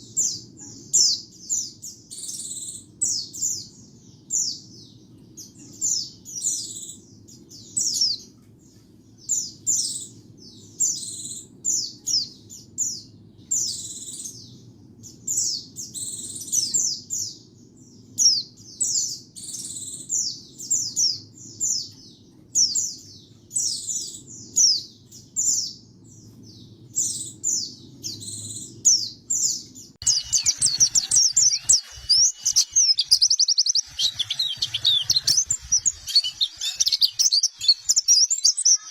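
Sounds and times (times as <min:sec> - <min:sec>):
bird singing falling chirps: 0:17.9 - 0:38.9
fast bird twittering: 0:30.0 - 0:38.9.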